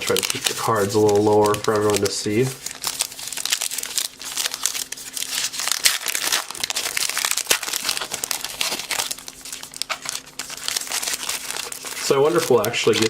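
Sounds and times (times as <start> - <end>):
wrapper crinkling: 0.0 - 13.0.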